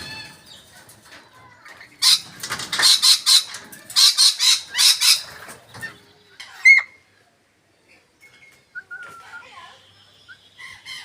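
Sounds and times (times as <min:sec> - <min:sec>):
parrots harsh screeches: 0:02.0 - 0:05.4.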